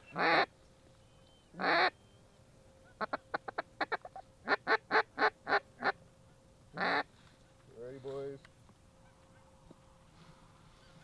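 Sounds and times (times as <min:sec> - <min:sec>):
waterfowl calling: 0:00.0 - 0:00.5, 0:01.5 - 0:02.2, 0:02.8 - 0:06.0, 0:06.8 - 0:07.1.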